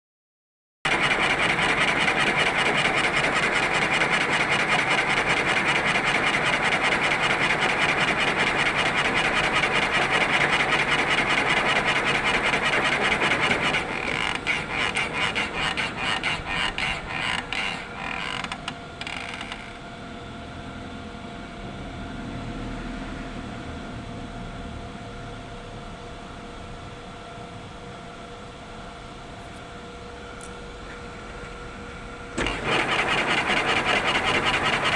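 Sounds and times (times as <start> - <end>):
lathe rasping cut: 0.9 - 17.8, 32.4 - 34.9.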